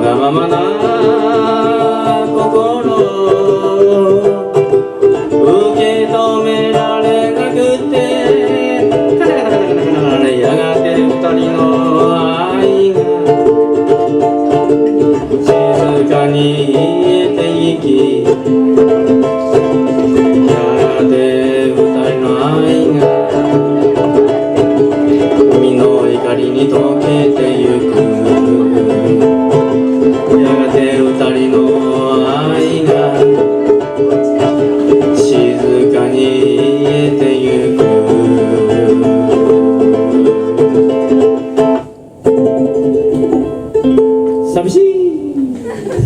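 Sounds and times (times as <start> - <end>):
strummed ukulele ballad: 0.0 - 46.0.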